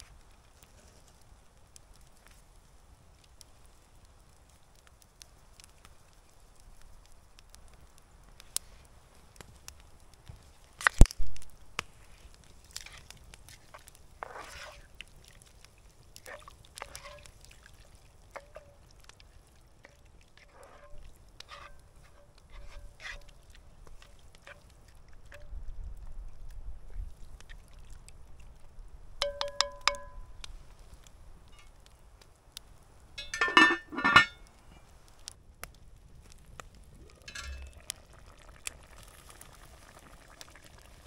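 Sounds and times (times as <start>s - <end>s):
cookware knocks and clinks: 29.2s - 30.2s, 33.2s - 34.4s.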